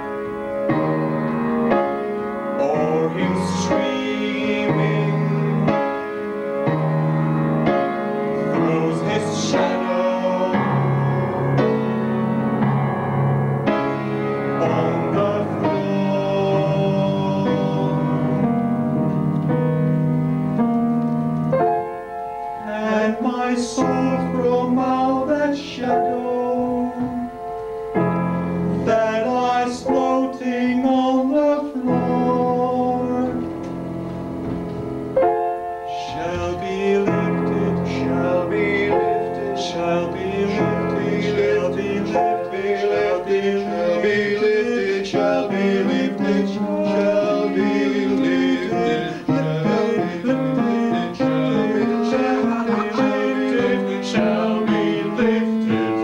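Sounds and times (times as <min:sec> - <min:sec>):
piano music: 0:00.0 - 0:56.0
person singing: 0:02.6 - 0:06.0, 0:08.4 - 0:11.2, 0:14.6 - 0:18.5, 0:22.6 - 0:27.4, 0:28.8 - 0:33.6, 0:35.9 - 0:56.0.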